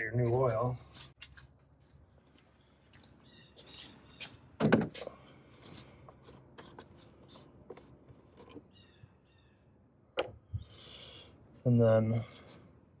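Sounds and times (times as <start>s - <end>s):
insect trilling: 7.0s - 13.0s.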